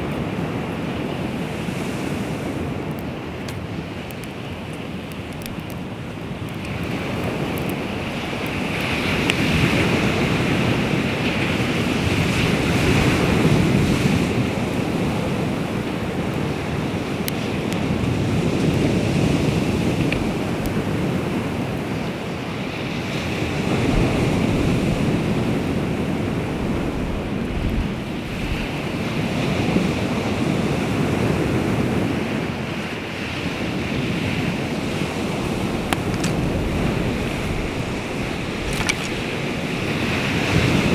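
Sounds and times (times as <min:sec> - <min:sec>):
waves washing ashore: 0:00.0 - 0:40.9
faint clicks: 0:02.8 - 0:05.8, 0:35.8 - 0:39.4
wind buffeting microphone: 0:23.1 - 0:32.2, 0:33.5 - 0:40.9.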